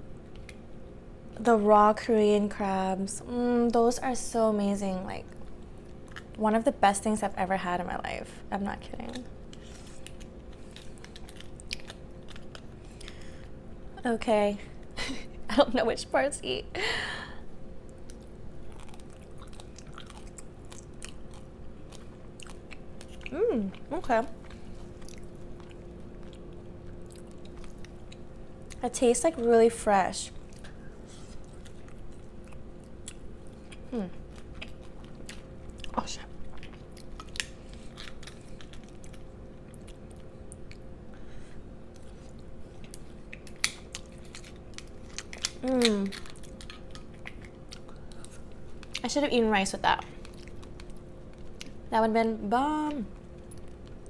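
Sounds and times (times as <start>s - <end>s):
steady low hum: 0.0s - 54.0s
wet chewing and biting: 5.4s - 6.4s, 8.9s - 13.6s, 17.8s - 28.8s, 30.3s - 40.9s, 41.8s - 49.1s, 50.0s - 51.9s.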